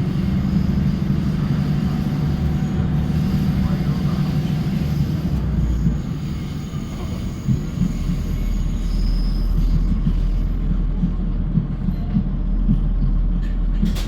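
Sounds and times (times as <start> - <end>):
train rumble inside carriage: 0.0 - 14.0
high wheel squeal: 4.8 - 10.4.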